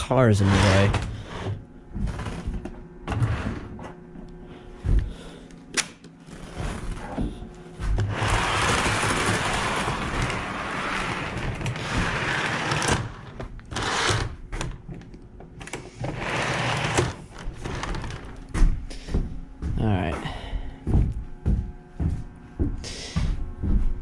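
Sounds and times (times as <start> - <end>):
model train whirring and rattling: 8.1 - 13.2, 13.8 - 14.2.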